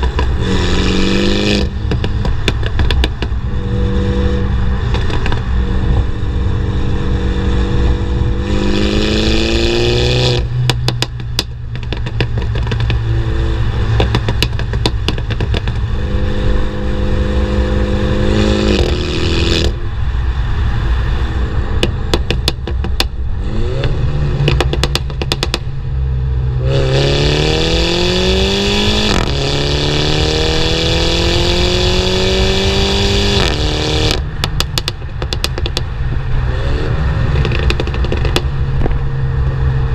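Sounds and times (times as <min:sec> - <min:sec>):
exhaust pops and crackles: 0:00.0 - 0:03.5, 0:04.8 - 0:06.1, 0:10.2 - 0:16.1, 0:18.6 - 0:19.8, 0:21.8 - 0:23.2, 0:23.8 - 0:25.8, 0:33.2 - 0:36.2, 0:37.3 - 0:39.0
car engine revving: 0:00.0 - 0:39.9.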